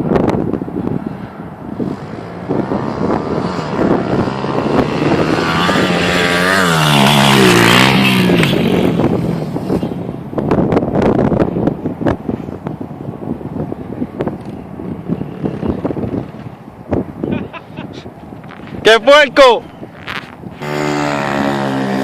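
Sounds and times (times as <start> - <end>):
wind buffeting microphone: 0.0 - 22.0
dirt bike engine revving: 1.8 - 10.1, 20.0 - 22.0.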